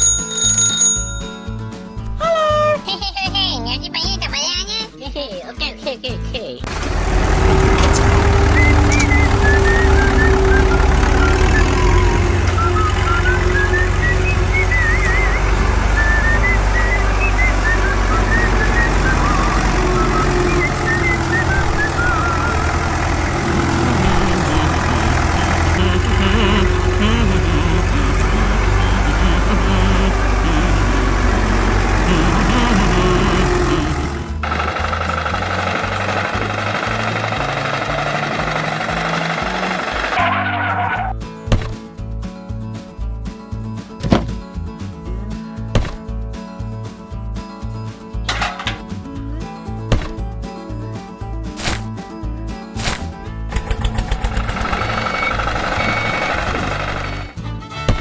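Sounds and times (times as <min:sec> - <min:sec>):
vehicle engine idling: 0:06.7 - 0:41.6, 0:53.1 - 0:58.0
whistled gliding notes: 0:07.1 - 0:41.2, 0:53.9 - 0:58.0.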